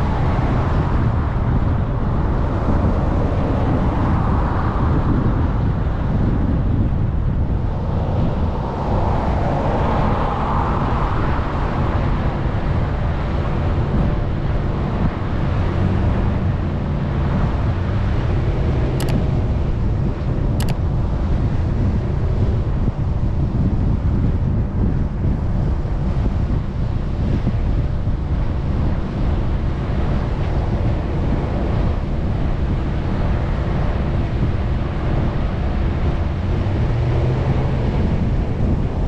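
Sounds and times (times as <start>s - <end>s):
off-road vehicle engine drone: 0.0s - 39.0s
wind buffeting microphone: 0.0s - 39.0s
short sharp clicks: 19.0s - 19.2s.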